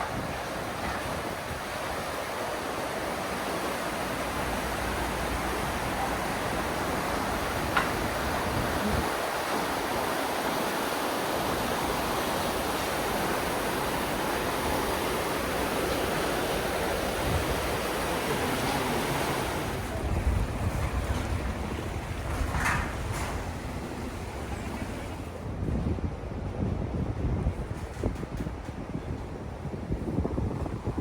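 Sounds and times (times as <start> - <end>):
river water rushing: 0.0 - 25.4
low gusty rumble: 17.2 - 31.0.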